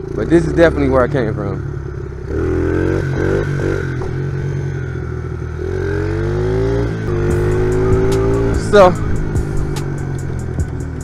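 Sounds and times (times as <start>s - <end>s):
pit bike engine revving: 0.0s - 11.0s.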